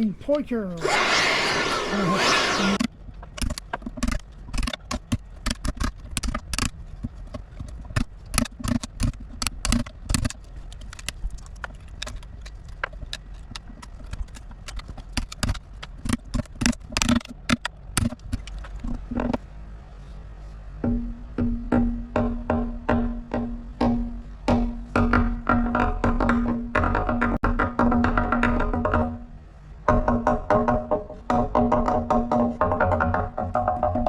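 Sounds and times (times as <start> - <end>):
power carving tool running: 0.8 - 2.8.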